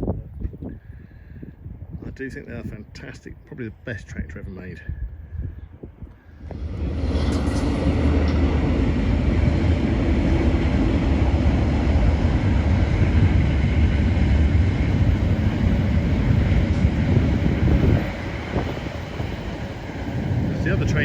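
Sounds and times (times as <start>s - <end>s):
train rumbling past: 6.3s - 21.0s.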